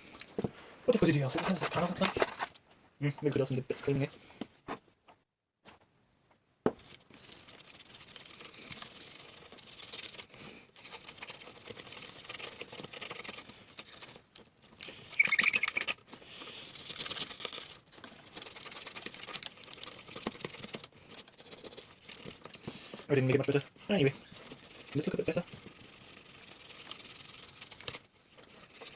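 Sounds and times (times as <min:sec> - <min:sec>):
rubbing and scratching on camera: 0:00.0 - 0:04.9, 0:06.7 - 0:28.9
squeaky rubbing: 0:15.0 - 0:16.0.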